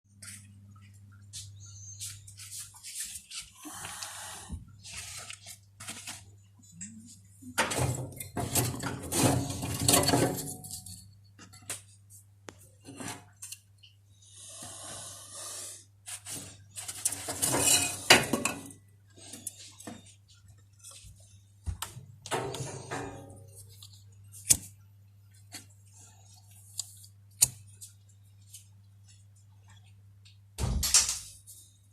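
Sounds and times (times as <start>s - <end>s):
hard objects clattering and clinking: 17.0s - 18.8s.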